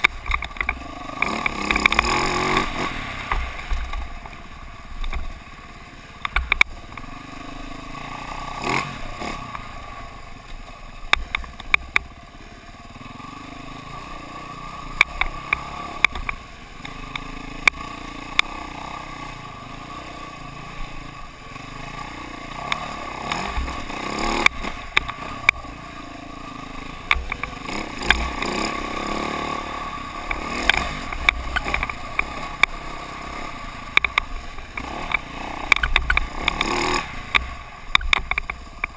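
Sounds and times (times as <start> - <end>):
dirt bike engine running: 0.0 - 38.9
sharp knocks and rattles: 33.9 - 38.9.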